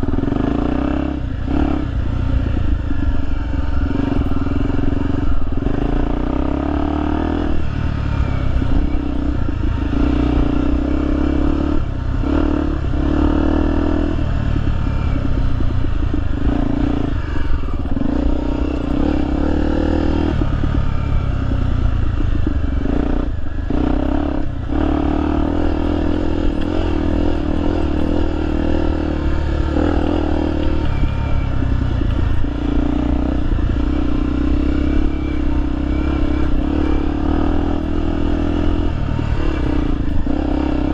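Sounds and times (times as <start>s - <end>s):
motorcycle engine revving: 0.0s - 40.9s
motorcycle rattling: 0.0s - 40.9s.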